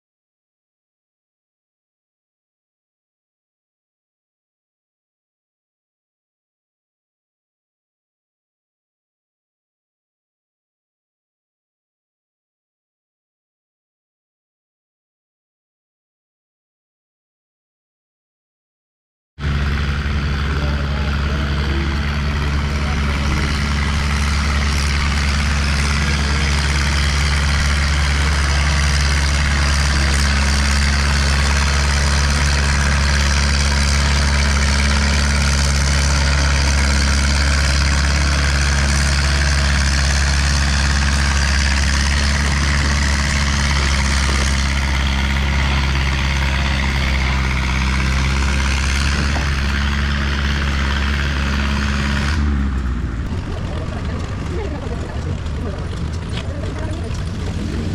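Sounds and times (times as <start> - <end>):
tractor engine running: 19.4 - 57.9.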